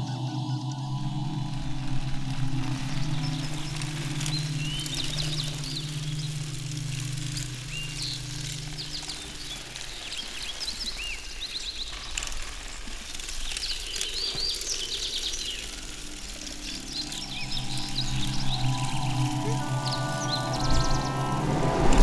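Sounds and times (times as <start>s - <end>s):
low steady hum: 0.0s - 10.1s, 15.8s - 22.0s
small birds chirping: 0.0s - 21.8s
forest ambience: 0.0s - 22.0s.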